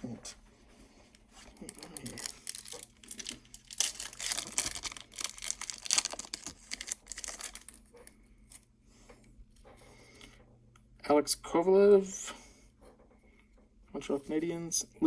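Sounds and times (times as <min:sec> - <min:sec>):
wrapper tearing and crinkling: 0:01.5 - 0:07.9.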